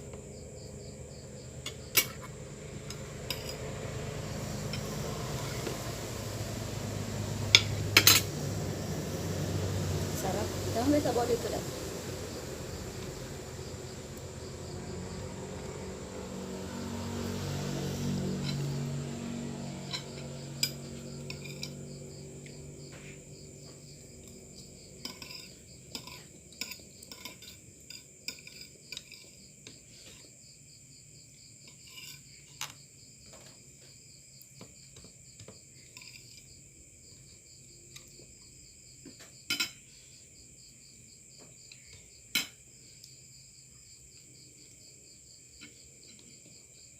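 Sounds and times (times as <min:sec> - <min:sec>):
low drone: 0:00.0 - 0:24.8
insects chirping: 0:00.0 - 0:46.9
cutlery clinking on a plate: 0:25.0 - 0:29.4, 0:39.5 - 0:39.8.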